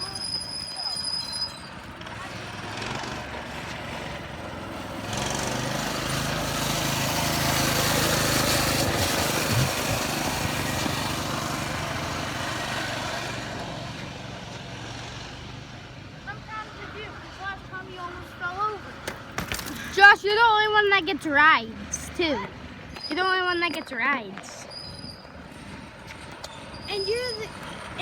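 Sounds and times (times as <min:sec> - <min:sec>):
dirt bike engine running: 0:01.8 - 0:15.2.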